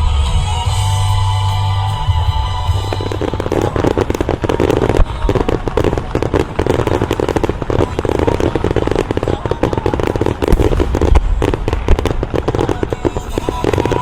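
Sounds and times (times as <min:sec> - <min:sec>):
show music: 0:00.0 - 0:14.0
aerial fireworks crackling: 0:02.4 - 0:14.0.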